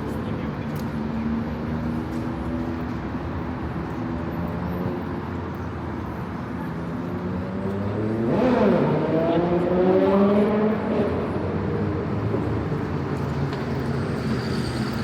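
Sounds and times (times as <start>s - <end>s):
steady hum of traffic: 0.0s - 15.0s
vehicle accelerating: 7.2s - 12.7s.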